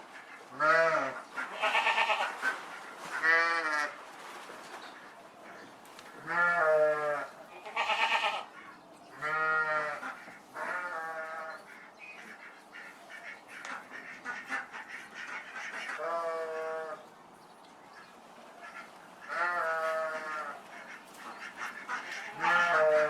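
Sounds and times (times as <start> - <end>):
rustle: 0.0 - 23.0
sheep or goats bleating: 0.6 - 2.3, 6.2 - 8.5, 19.3 - 20.6, 22.1 - 23.0.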